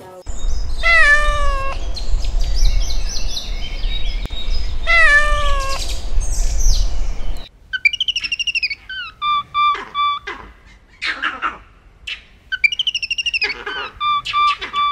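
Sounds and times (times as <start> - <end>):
small birds chirping: 0.2 - 10.4, 12.1 - 14.9
low rumble: 0.3 - 7.5
cat meowing: 0.8 - 1.8, 4.8 - 5.9
cat trilling: 0.8 - 2.0, 4.8 - 6.0.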